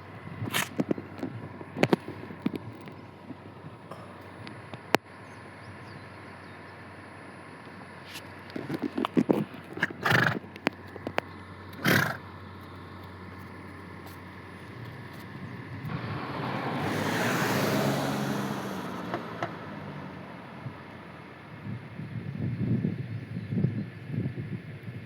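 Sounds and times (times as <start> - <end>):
vehicle passing by: 14.9 - 21.3.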